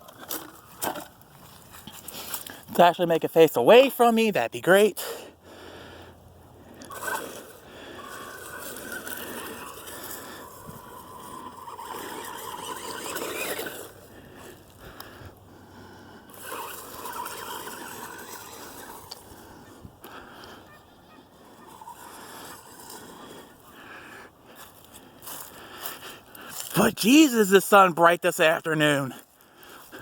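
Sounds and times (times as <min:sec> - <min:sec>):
toy truck electric motor whining: 0:06.7 - 0:20.5, 0:21.3 - 0:24.3.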